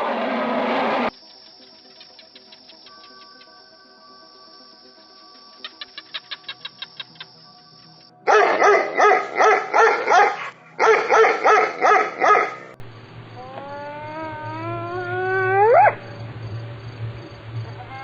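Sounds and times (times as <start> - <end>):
dog barking: 8.3 - 12.7
dog howling call rising: 13.3 - 16.2.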